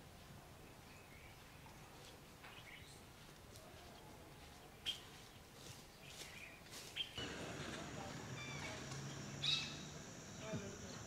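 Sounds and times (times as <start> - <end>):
steady hiss: 7.2 - 11.0
high bird chirps: 8.3 - 10.5.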